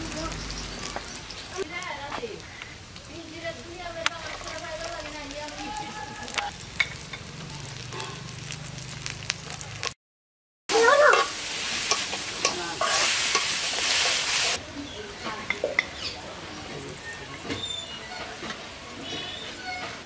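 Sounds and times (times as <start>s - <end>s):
onions sizzling in oil: 0.0s - 10.0s, 10.7s - 20.0s
metal spatula scraping pan: 11.1s - 14.6s.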